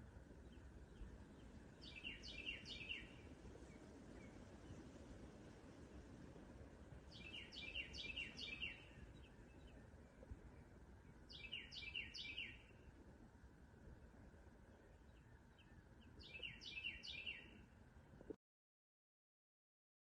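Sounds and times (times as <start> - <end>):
faint low outdoor rumble: 0.0 - 18.4
songbird whistling: 1.8 - 3.2, 7.2 - 9.0, 11.3 - 12.7, 16.2 - 17.6.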